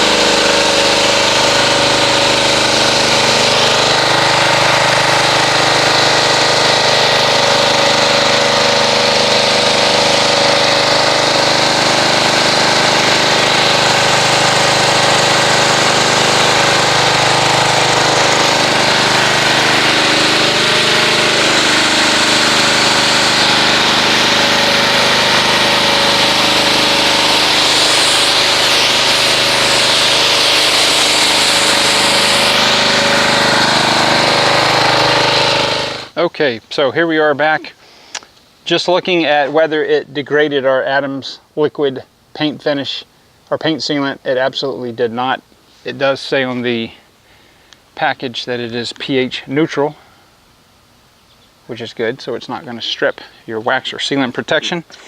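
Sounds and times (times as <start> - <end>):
pressure washer motor drone: 0.0 - 36.2
hiss of water jet: 22.1 - 35.2.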